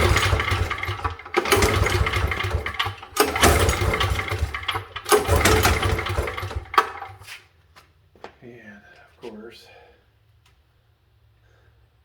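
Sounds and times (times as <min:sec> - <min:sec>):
generator engine spinning briefly: 0:00.0 - 0:07.2
recoil starter pulled: 0:00.0 - 0:07.3.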